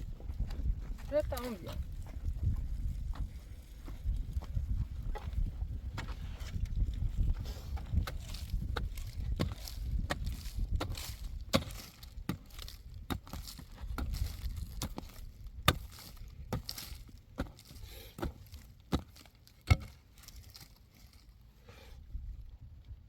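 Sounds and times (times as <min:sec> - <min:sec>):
low rumble: 0:00.0 - 0:01.1.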